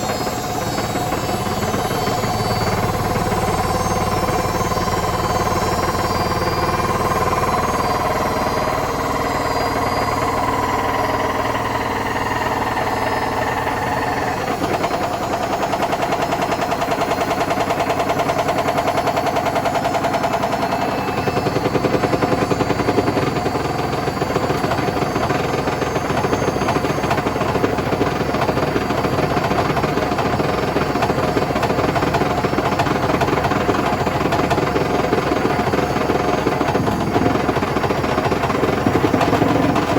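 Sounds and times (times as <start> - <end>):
washing machine motor whine: 0.0 - 39.9.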